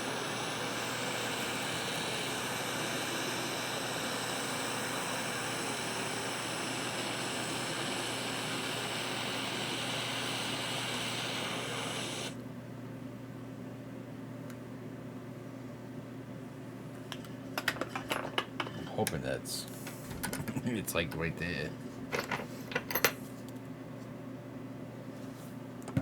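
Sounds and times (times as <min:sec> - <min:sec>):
electric blower whining: 0:00.0 - 0:12.4.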